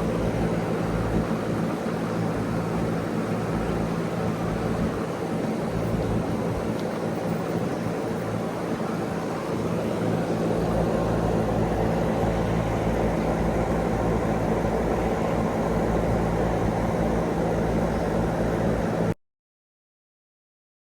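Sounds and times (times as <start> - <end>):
fan rushing air: 0.0 - 19.2
compressor hum: 7.6 - 19.2.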